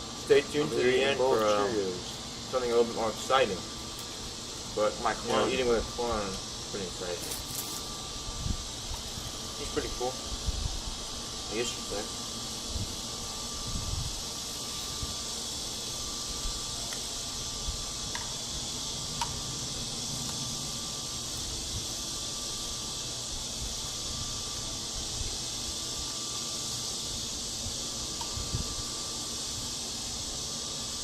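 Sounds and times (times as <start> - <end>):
high-pitched insect chorus: 0.0 - 31.0.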